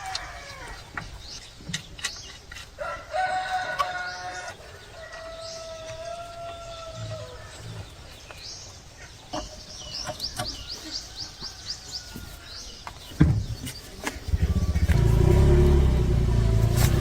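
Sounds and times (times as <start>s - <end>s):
rooster crowing: 2.8s - 7.4s.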